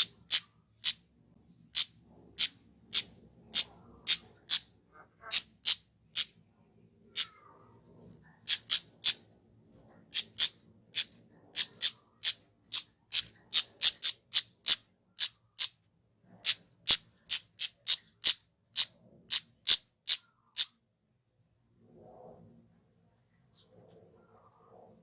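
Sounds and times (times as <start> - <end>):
bird high-pitched call notes: 0.0 - 1.0, 5.3 - 6.3, 8.5 - 9.2, 10.2 - 12.4, 13.1 - 15.7, 16.5 - 20.7.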